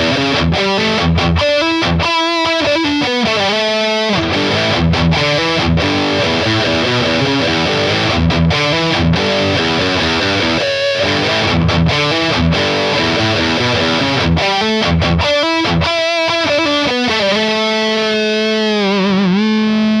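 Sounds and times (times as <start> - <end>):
distorted electric guitar riff: 0.0 - 20.0.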